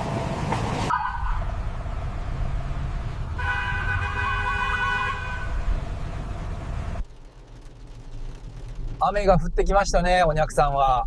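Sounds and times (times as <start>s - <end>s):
low traffic rumble: 0.0s - 11.0s
horn-like tone: 3.4s - 5.6s.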